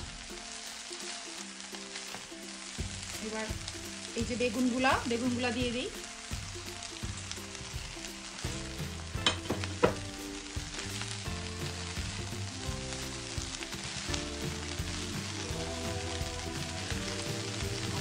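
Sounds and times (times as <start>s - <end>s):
rice sizzling in a wok: 0.0s - 18.0s
spatula stirring and tossing: 0.6s - 18.0s.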